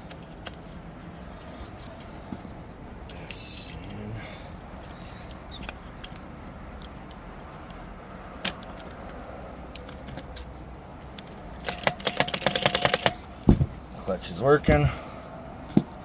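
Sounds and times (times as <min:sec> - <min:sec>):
starter clutch clicking: 0:11.1 - 0:14.9
heavy thump: 0:13.4 - 0:13.8.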